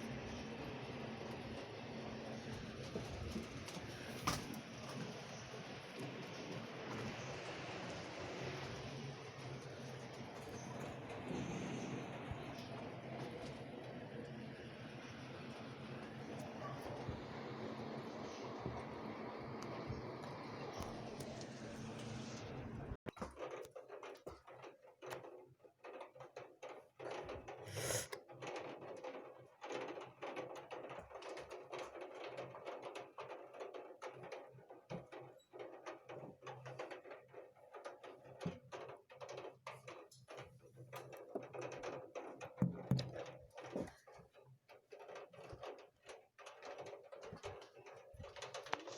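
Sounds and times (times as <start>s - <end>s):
raindrops tapping on hard surface: 42.6s - 44.0s.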